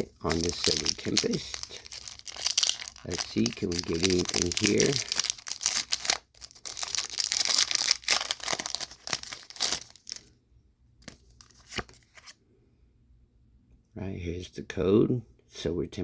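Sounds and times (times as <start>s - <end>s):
foil wrapper tearing and crinkling: 0.0s - 10.2s.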